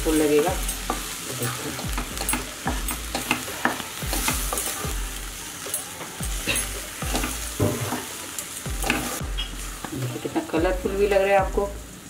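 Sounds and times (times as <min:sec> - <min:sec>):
vegetables sizzling in a pan: 0:00.0 - 0:12.0
wooden spatula scraping a pan: 0:06.3 - 0:08.2.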